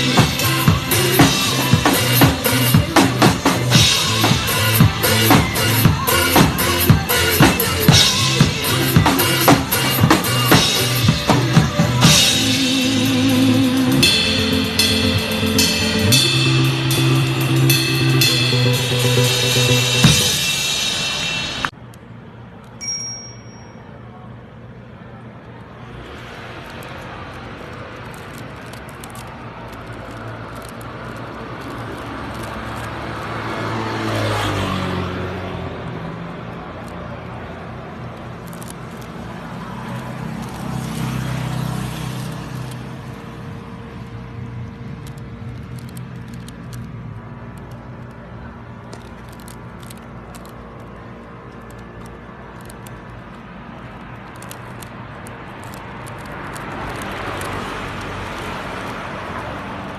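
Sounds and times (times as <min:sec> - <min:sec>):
drum kit playing: 0:00.0 - 0:21.7
pop backing track: 0:00.0 - 0:21.7
motor vehicle passing by: 0:25.6 - 0:59.9.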